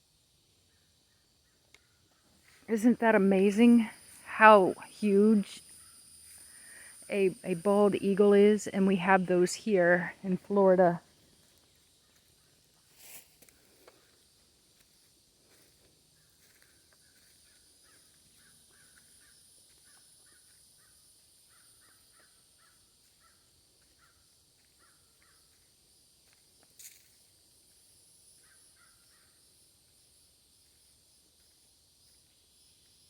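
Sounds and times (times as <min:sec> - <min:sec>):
high-pitched hiss: 0:00.0 - 0:24.9, 0:25.5 - 0:33.0
faint crows cawing: 0:01.1 - 0:02.4, 0:16.2 - 0:25.5, 0:28.4 - 0:29.3.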